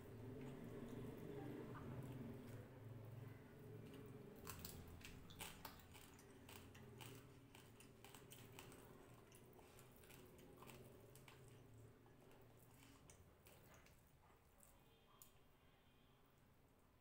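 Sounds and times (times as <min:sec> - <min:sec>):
wet clicking chewing: 0:03.8 - 0:15.3
fingers squishing food: 0:03.9 - 0:15.4.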